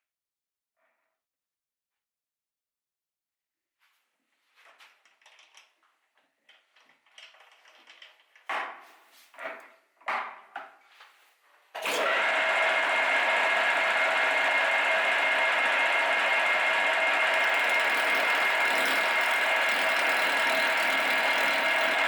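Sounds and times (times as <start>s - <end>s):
motor-driven tool whining hum: 11.8s - 22.0s
objects being handled and scraped: 17.3s - 22.0s.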